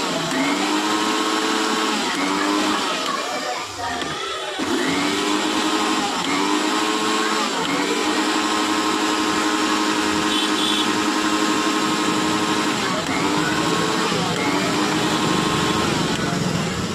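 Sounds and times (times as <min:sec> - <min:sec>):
mixer grinder motor running: 0:00.0 - 0:16.9.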